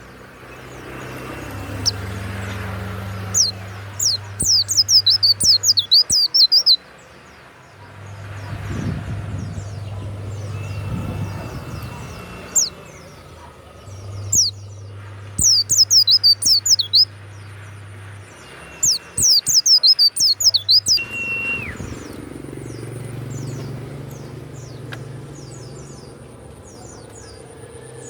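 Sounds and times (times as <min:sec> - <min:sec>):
bird singing high falling notes: 0:01.3 - 0:06.9, 0:08.1 - 0:23.7.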